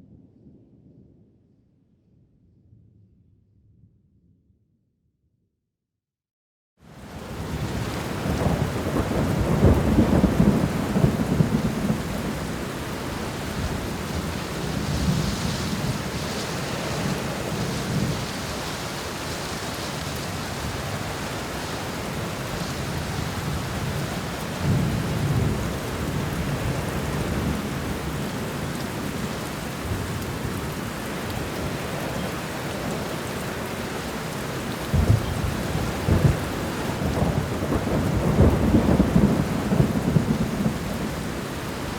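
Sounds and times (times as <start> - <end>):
heavy rain falling: 6.9 - 41.9
thunder rumbling: 7.4 - 19.0, 34.8 - 41.9.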